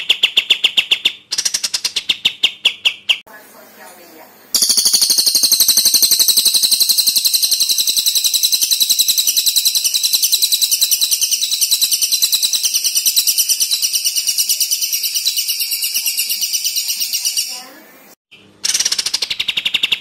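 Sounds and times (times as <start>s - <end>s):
songbird rattling trill: 4.6s - 17.7s.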